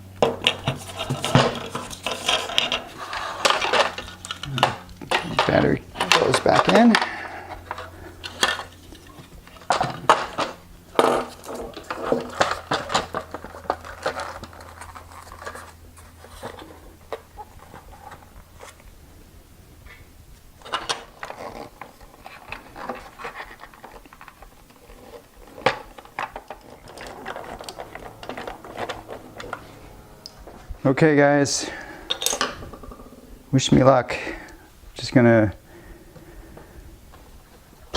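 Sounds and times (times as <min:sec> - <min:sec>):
faint low hum: 0:00.0 - 0:37.9
metallic clinks and scraping: 0:20.6 - 0:33.2.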